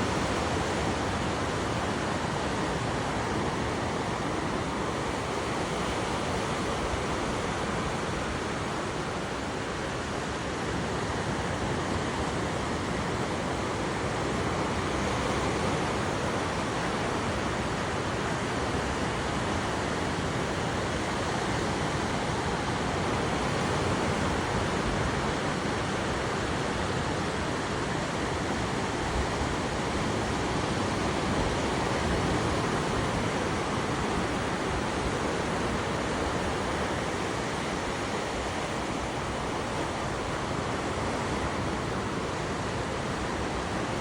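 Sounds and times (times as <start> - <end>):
sea waves breaking on beach: 0.0 - 44.0.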